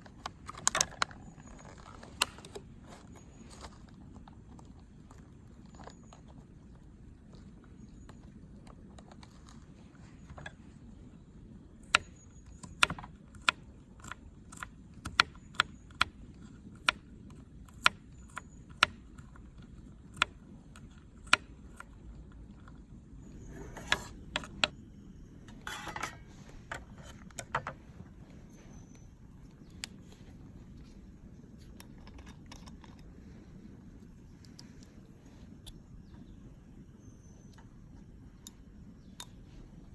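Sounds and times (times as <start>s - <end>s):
low background hiss: 0.0s - 39.9s
rustling scrapes: 23.2s - 24.6s, 25.4s - 29.1s.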